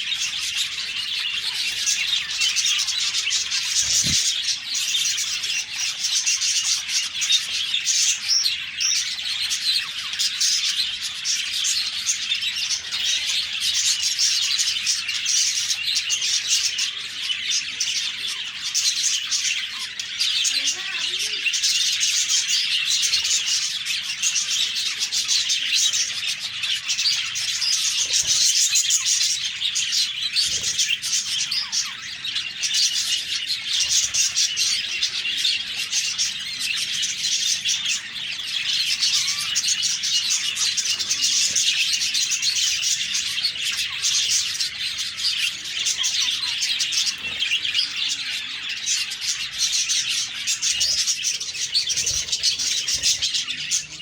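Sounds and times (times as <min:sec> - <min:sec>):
budgerigars chirping and warbling: 0:00.0 - 0:54.0.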